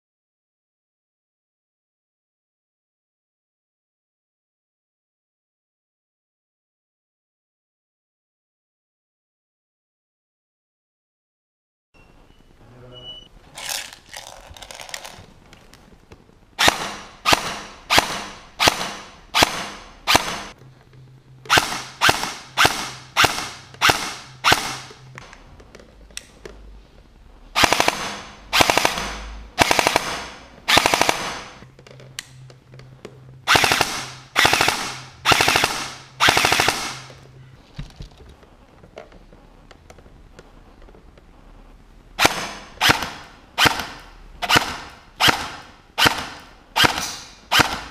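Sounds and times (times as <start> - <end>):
airsoft gun shots: 16.6 - 20.5, 21.5 - 24.9, 27.6 - 31.6, 33.5 - 37.1, 42.2 - 47.9.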